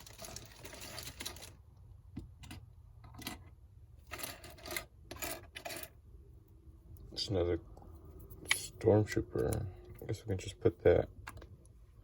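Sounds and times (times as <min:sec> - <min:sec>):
plastic pieces rustling: 0:00.0 - 0:01.7.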